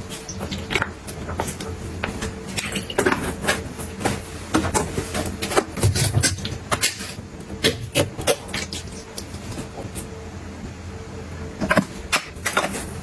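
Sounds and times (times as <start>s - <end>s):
faint steady hum: 0.0s - 13.0s
kitchen items clicking and knocking: 0.2s - 8.9s, 11.6s - 13.0s.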